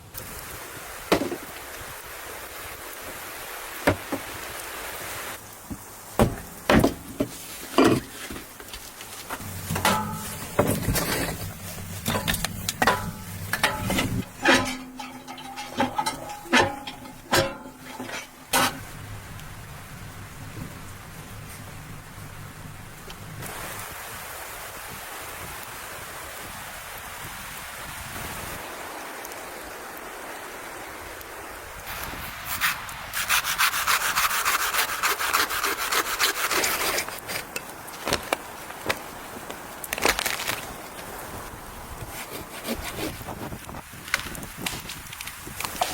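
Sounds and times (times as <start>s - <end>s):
steady hiss: 0.0s - 45.9s
sharp knocks: 6.2s - 8.0s
metallic clinks and knocks: 12.0s - 18.8s
hand saw rasping through wood: 32.5s - 37.4s, 42.1s - 43.4s.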